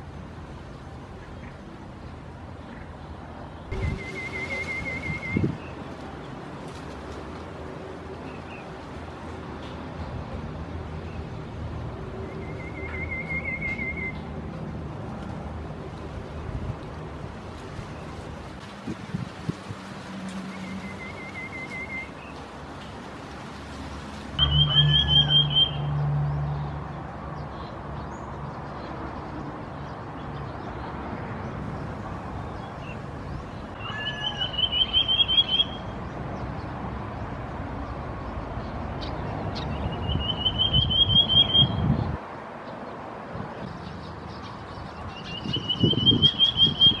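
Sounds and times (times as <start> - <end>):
bird trilling: 12.4 - 14.2, 24.4 - 25.9, 33.8 - 35.9, 45.2 - 47.0.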